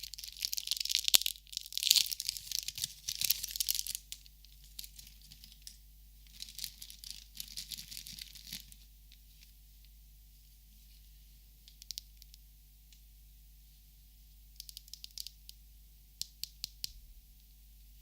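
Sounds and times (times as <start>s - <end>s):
crinkling and rustling: 0.0s - 9.6s.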